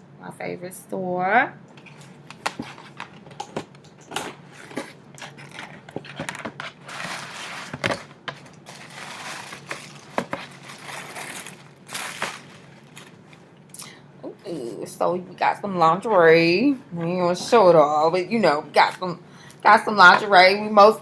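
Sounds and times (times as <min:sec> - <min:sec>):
paper bag rustling and crinkling: 0:04.4 - 0:13.5.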